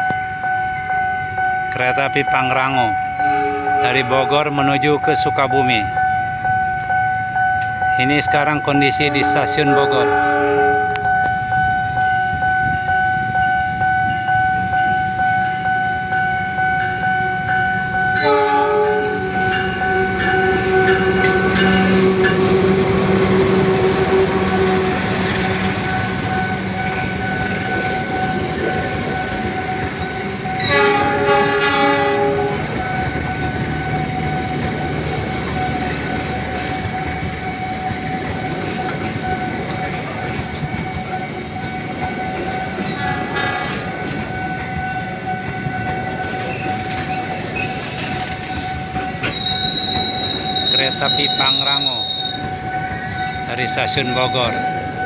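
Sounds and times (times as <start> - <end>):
diesel engine drone: 0.0 - 48.0
train wheels rumbling on rails: 0.0 - 55.0
train horn: 3.1 - 4.4, 8.9 - 12.8, 18.0 - 28.4, 30.4 - 34.0, 42.4 - 45.8.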